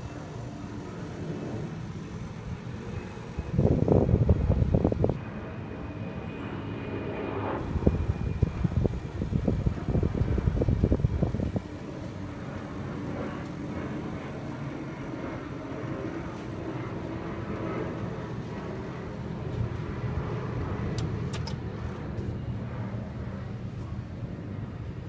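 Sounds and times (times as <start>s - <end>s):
gas heater humming and rushing: 0.0s - 5.2s, 7.6s - 25.0s.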